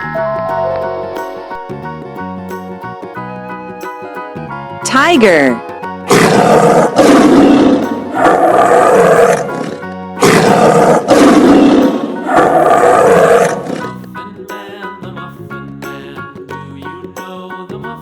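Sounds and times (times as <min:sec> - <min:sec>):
short musical jingle: 0:00.0 - 0:02.0
background music: 0:00.0 - 0:18.0
tiger roaring: 0:06.1 - 0:13.9.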